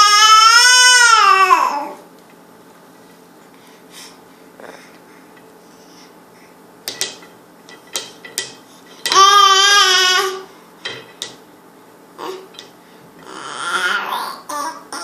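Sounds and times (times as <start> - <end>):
baby crying wail: 0.0 - 2.0, 9.2 - 10.4.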